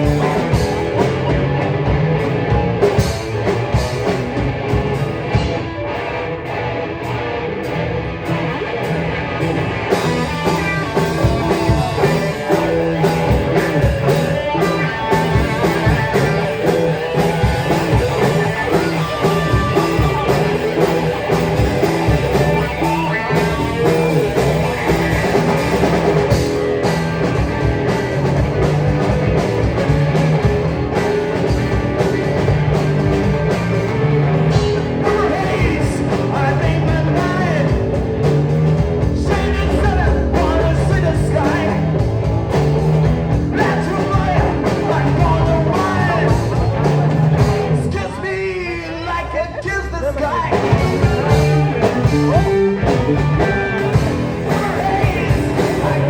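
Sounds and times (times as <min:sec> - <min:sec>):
bass guitar: 0:00.0 - 0:56.0
distorted electric guitar: 0:00.0 - 0:56.0
drums: 0:00.0 - 0:56.0
person singing: 0:10.2 - 0:25.8, 0:34.5 - 0:38.0, 0:39.0 - 0:42.1, 0:43.5 - 0:46.7, 0:47.8 - 0:56.0.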